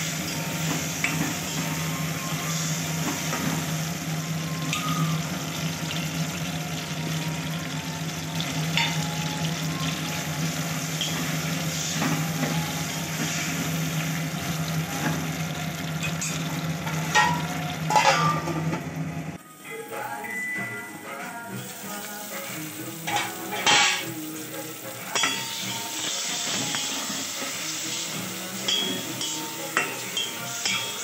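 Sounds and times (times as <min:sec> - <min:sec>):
tomatoes sizzling in oil: 0:00.0 - 0:31.0
ladle scraping metal pot: 0:17.1 - 0:18.5.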